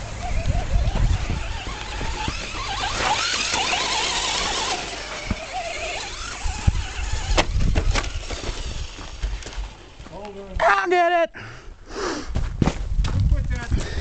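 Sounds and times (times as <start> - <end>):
electric motor whining: 0.0 - 10.4
tyres rushing on dirt: 0.0 - 10.8.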